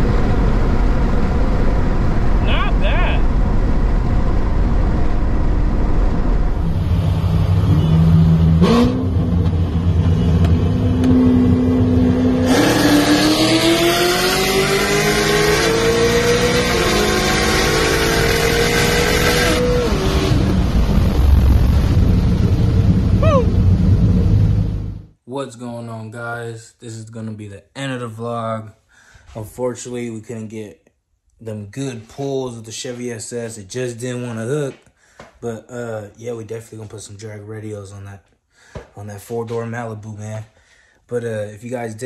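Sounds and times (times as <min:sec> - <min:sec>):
car engine accelerating: 0:03.2 - 0:25.1.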